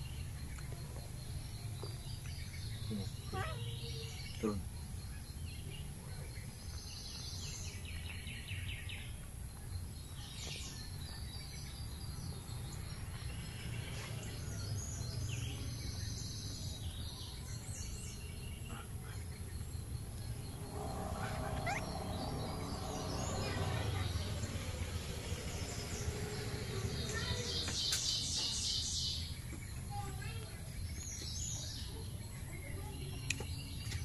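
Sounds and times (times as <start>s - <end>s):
birds chirping: 0.0s - 34.0s
low steady rumble: 18.6s - 27.6s.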